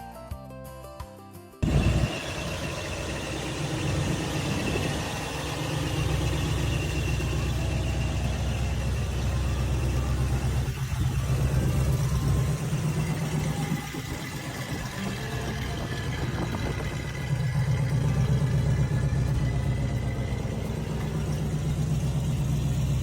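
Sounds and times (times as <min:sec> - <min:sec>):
car engine idling: 0:01.6 - 0:23.0.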